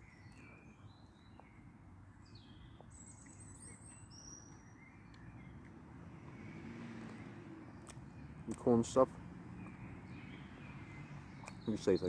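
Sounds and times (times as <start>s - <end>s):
high bird chirps: 9.5s - 12.0s.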